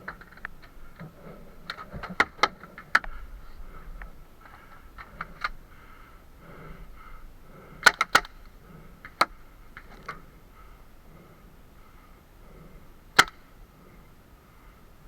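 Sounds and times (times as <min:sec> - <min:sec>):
paintball markers firing: 0:07.8 - 0:10.2, 0:13.2 - 0:13.5.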